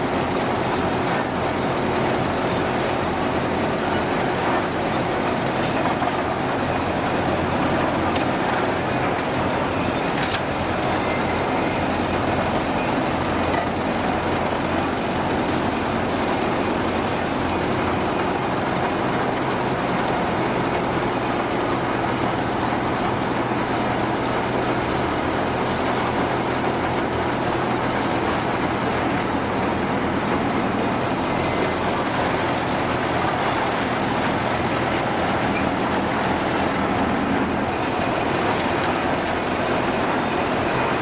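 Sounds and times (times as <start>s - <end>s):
heavy vehicle engine running: 0.0s - 41.0s.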